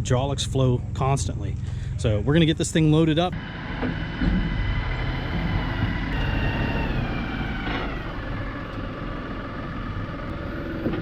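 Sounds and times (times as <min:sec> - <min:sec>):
vehicle engine running: 0:00.0 - 0:11.0
faint high whine: 0:03.3 - 0:10.9.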